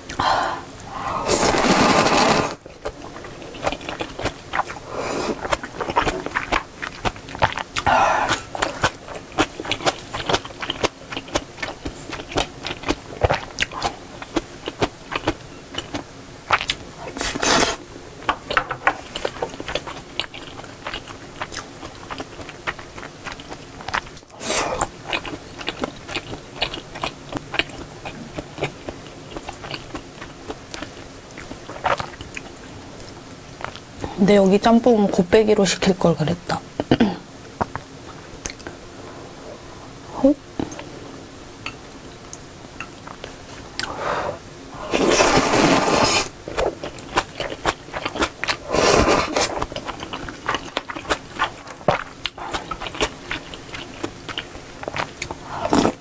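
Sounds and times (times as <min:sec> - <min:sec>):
person chewing noodles: 0:00.0 - 0:34.1, 0:42.2 - 0:56.0.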